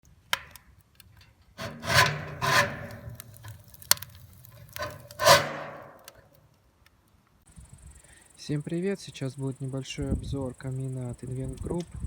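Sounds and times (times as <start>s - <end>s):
rasping scrapes: 1.6s - 6.2s.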